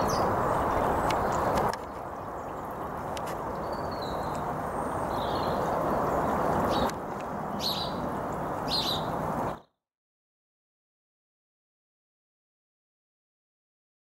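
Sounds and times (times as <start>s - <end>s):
outdoor background noise: 0.0s - 9.8s
small bird chirping: 3.6s - 9.8s.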